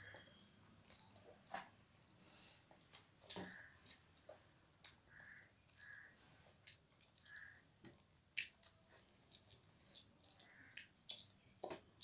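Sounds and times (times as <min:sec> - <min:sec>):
faint high whine: 0:00.0 - 0:12.0
chewing and mouth smacks: 0:00.8 - 0:01.7, 0:08.3 - 0:12.0.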